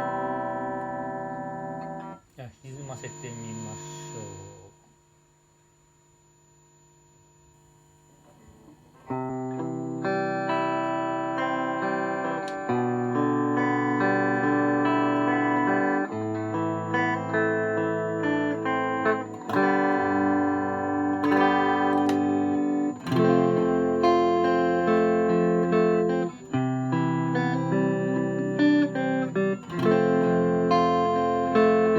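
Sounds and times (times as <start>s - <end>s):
distorted electric guitar: 0.0s - 4.8s, 8.2s - 31.9s
faint amplifier hum: 0.0s - 31.9s.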